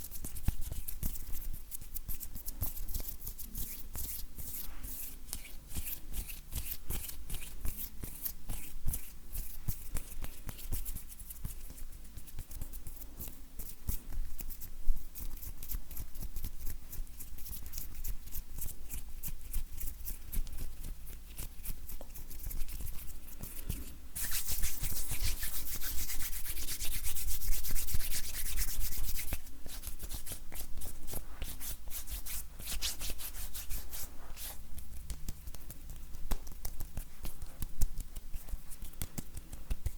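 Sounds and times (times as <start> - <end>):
hands rubbing together: 21.6 - 39.9.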